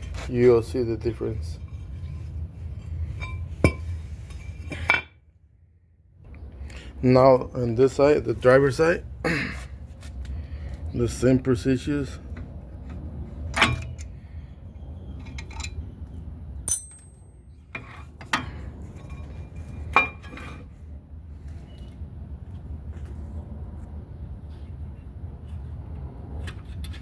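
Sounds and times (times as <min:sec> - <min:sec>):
low steady hum: 0:00.0 - 0:08.6
metal tools clinking and knocking: 0:01.4 - 0:05.2, 0:15.1 - 0:15.9, 0:16.6 - 0:20.7
sharp metal strikes ringing: 0:16.7 - 0:17.4.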